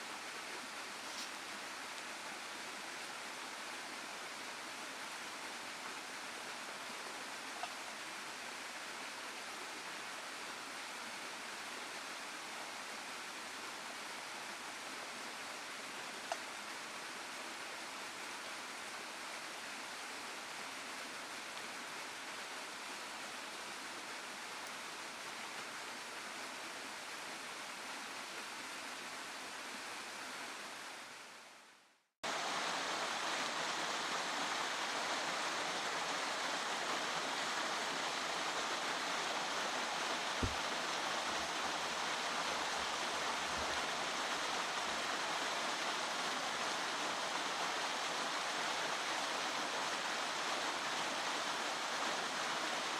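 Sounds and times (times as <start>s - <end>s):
waterfall and stream rushing: 0.0s - 31.6s, 32.2s - 52.9s
low thump: 40.4s - 40.7s.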